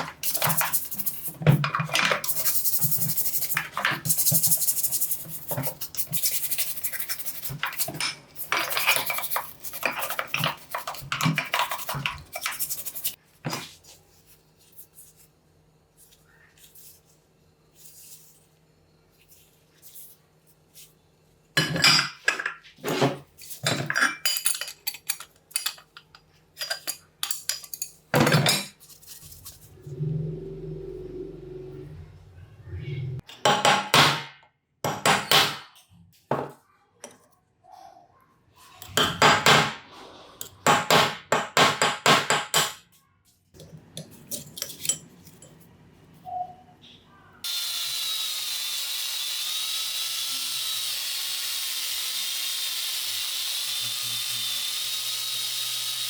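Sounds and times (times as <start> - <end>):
metal parts clinking and scraping: 5.9 - 13.2, 23.4 - 29.6, 44.1 - 45.6.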